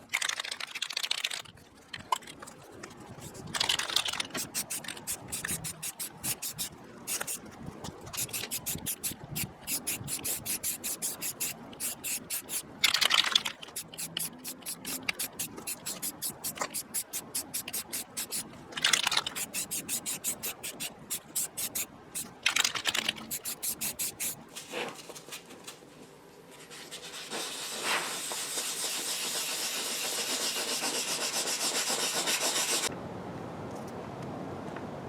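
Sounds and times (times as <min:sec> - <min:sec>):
spray can ball rattling: 0:03.2 - 0:07.4, 0:08.1 - 0:24.4
spray can hissing: 0:03.2 - 0:07.4, 0:08.1 - 0:12.7, 0:13.6 - 0:18.5, 0:19.2 - 0:22.3, 0:23.0 - 0:24.4.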